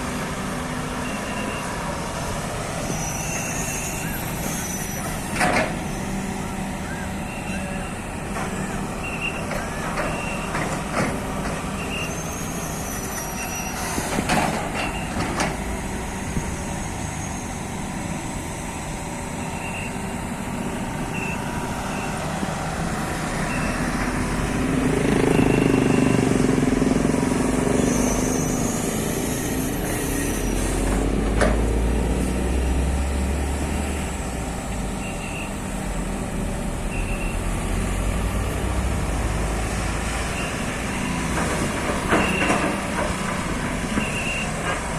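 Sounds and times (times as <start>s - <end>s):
excavator diesel engine: 0.0s - 44.9s
high warning beeps: 19.4s - 20.0s, 23.4s - 23.9s, 25.2s - 26.3s.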